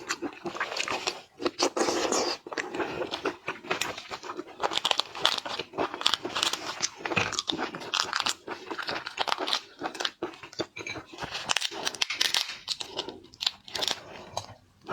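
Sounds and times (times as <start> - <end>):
shellfish shells crunching: 3.8 - 14.5.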